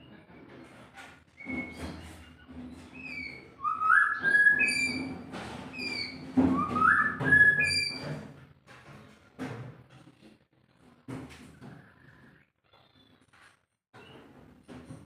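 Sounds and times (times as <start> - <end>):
bird singing whistled notes: 3.2 - 5.1, 6.5 - 8.0.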